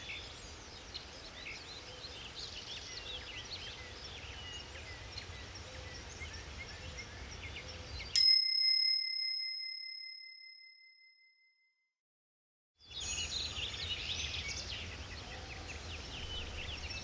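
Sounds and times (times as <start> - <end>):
birds chirping: 0.0 - 8.2, 12.9 - 17.0
timer bell ding: 8.2 - 11.2, 13.0 - 13.9.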